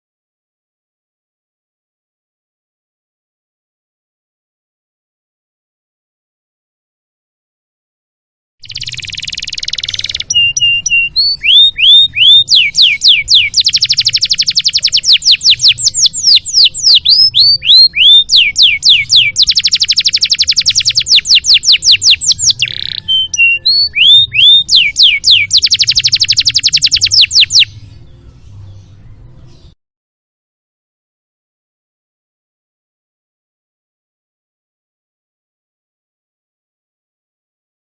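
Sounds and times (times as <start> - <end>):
canary singing with trills: 8.6 - 29.8.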